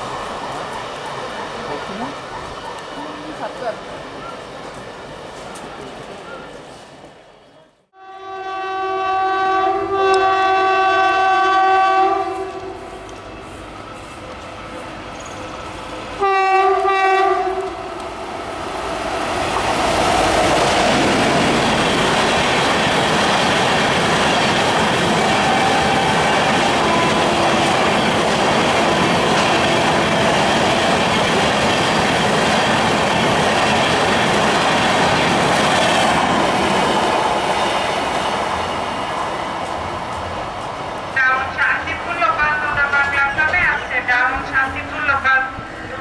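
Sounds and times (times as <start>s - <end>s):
train rushing past: 0.0s - 7.4s, 8.2s - 46.0s
locomotive horn blasts: 7.9s - 13.0s, 16.2s - 18.0s, 26.8s - 28.0s.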